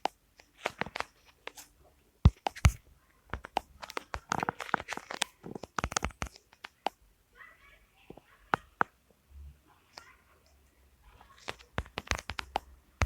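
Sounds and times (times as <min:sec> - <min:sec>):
crunching and crackling clicks: 0:02.3 - 0:07.0, 0:09.9 - 0:12.8.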